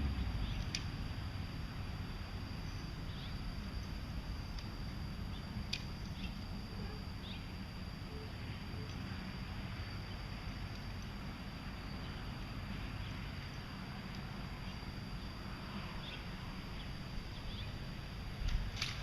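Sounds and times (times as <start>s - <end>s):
low rumble and hiss: 0.0s - 19.0s
faint bird chirps: 2.6s - 3.9s, 5.2s - 9.0s.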